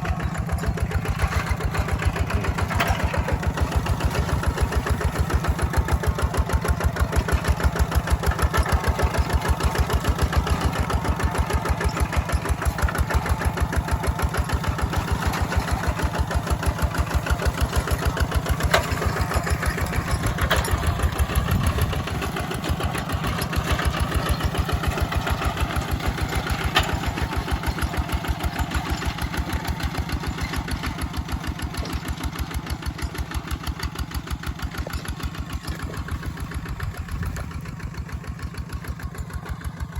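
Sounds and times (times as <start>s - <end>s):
walking tractor engine running: 0.0s - 39.9s.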